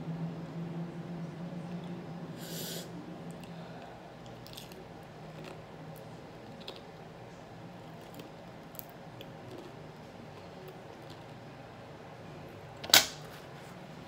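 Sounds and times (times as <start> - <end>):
chewing with wet clicks: 4.2 - 7.0.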